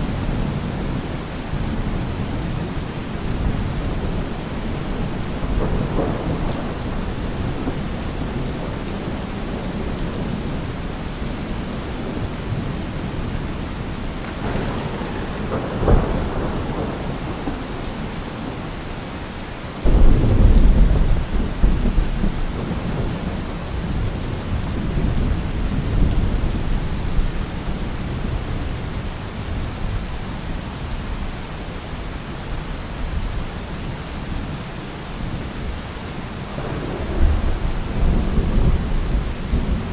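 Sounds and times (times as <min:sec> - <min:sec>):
heavy rain: 0:00.0 - 0:39.9
rolling thunder: 0:02.4 - 0:10.6, 0:14.2 - 0:18.8, 0:19.8 - 0:28.8, 0:36.6 - 0:39.9
sharp thunder crack: 0:19.9 - 0:22.9.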